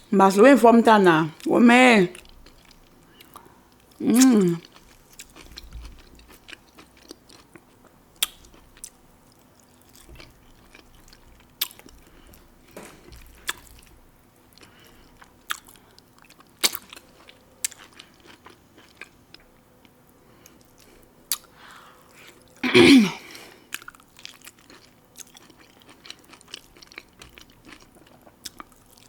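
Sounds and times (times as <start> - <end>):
person chewing and crunching food: 2.1 - 22.6, 23.2 - 29.0.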